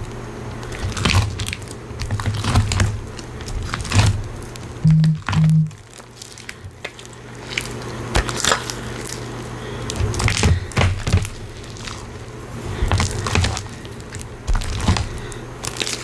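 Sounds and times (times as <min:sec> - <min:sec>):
faint steady hum: 0:00.0 - 0:16.0
short low tones: 0:04.8 - 0:05.8
slime crackling and clicking: 0:12.9 - 0:16.0.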